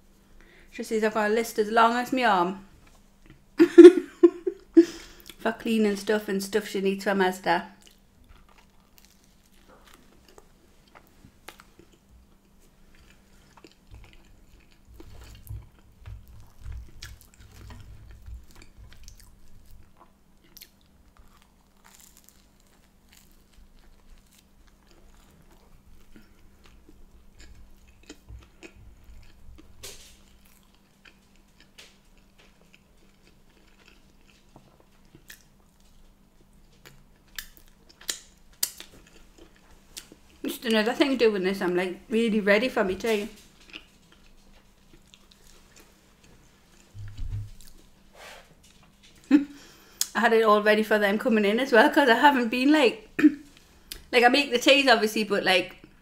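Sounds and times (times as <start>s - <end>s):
faint steady hum: 0.0s - 56.0s
person chewing food: 7.8s - 40.4s, 43.4s - 48.0s.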